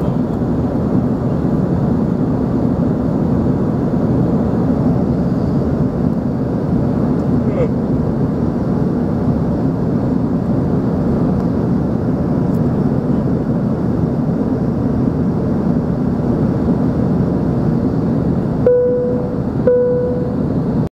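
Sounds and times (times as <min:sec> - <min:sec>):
aircraft cabin engine noise: 0:00.0 - 0:20.9
short steady tone: 0:18.6 - 0:20.8.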